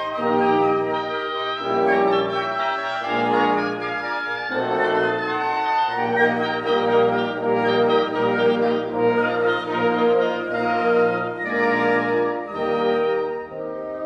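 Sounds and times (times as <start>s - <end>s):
chamber orchestra playing: 0.0s - 14.0s.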